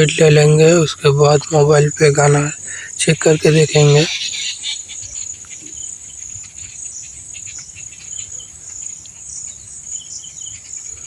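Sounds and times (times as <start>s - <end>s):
crickets chirping: 0.0s - 11.0s
faint clicks: 8.6s - 9.2s.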